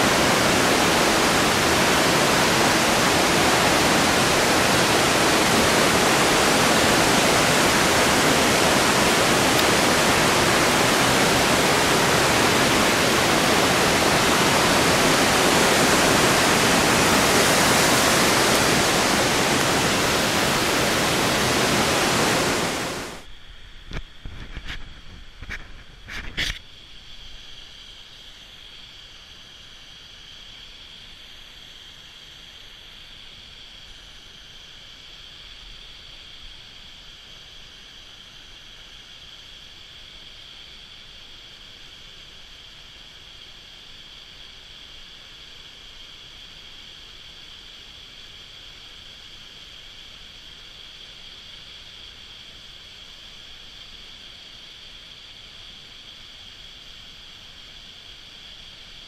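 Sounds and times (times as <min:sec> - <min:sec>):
mountain stream and waterfall rushing: 0:00.0 - 0:23.2.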